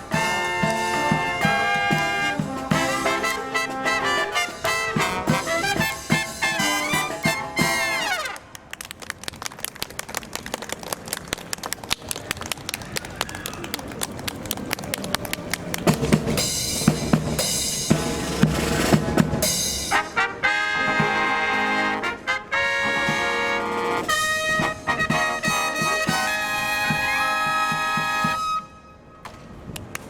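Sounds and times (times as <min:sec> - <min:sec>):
drum strokes: 0:00.0 - 0:08.0, 0:15.0 - 0:21.8
brass chords: 0:00.0 - 0:08.6, 0:15.4 - 0:29.1.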